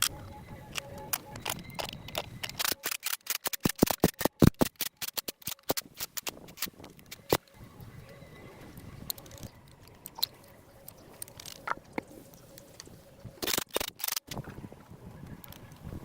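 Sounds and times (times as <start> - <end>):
faint steady hum: 0.0 - 2.8, 5.8 - 13.6
sharp clicks and knocks: 0.7 - 7.5.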